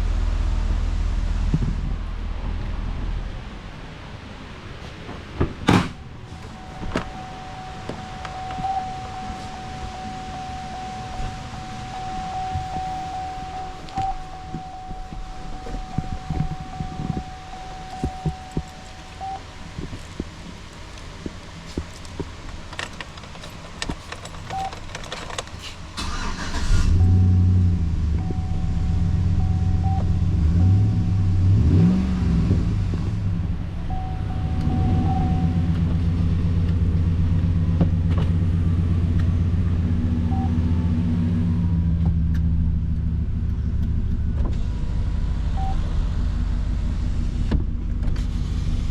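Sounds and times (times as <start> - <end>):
truck engine starting and idling: 0.0 - 48.9
steady chime tone: 6.3 - 20.3, 33.8 - 36.6
clicks: 12.2 - 25.9.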